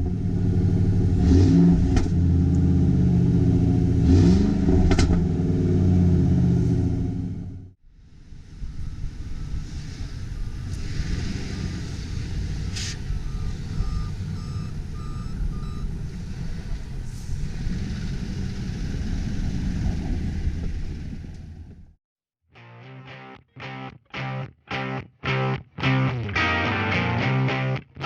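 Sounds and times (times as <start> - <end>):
pickup truck engine running: 4.6 - 21.9
reversing alarm beeping: 8.6 - 16.0.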